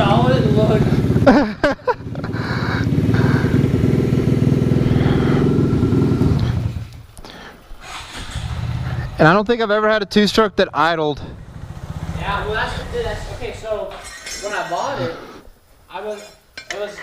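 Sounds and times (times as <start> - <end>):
motorcycle engine idling: 0.0 - 9.4, 10.2 - 14.0.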